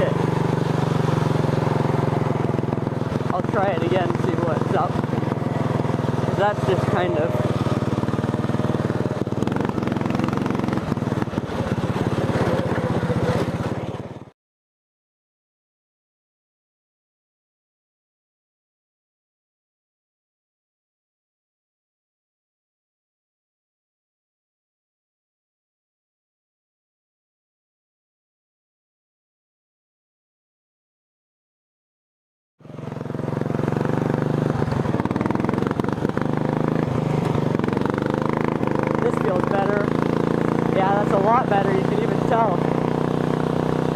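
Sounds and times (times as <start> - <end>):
small engine running: 0.0 - 14.3, 32.6 - 43.9.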